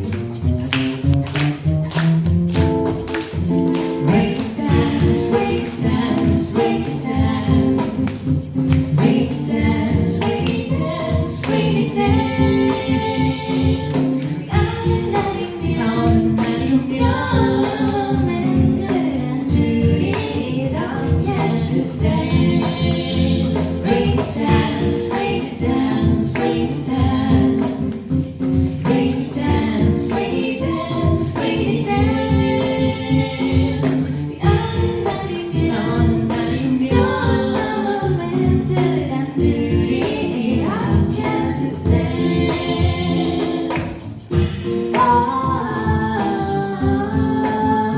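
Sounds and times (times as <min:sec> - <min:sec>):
drum beat: 0:00.0 - 0:20.4
live band playing pop song: 0:00.0 - 0:47.9
person singing: 0:03.9 - 0:08.2, 0:08.9 - 0:27.9, 0:28.7 - 0:47.9.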